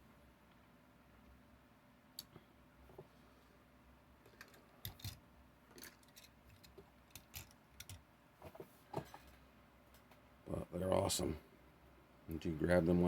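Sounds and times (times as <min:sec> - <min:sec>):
toy trucks clicking and tapping: 0:04.3 - 0:08.0.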